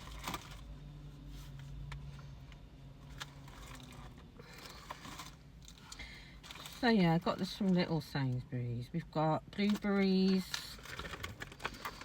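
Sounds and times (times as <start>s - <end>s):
plastic rustling: 0.0s - 0.7s, 3.0s - 7.7s, 9.6s - 12.0s
low steady hum: 0.0s - 12.0s.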